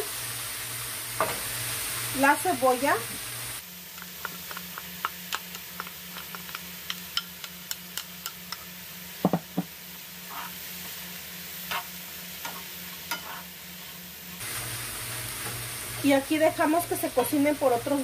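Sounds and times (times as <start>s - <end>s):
vegetables sizzling in oil: 0.0s - 18.0s
wooden spoon scraping a pan: 10.2s - 10.9s, 11.6s - 13.9s.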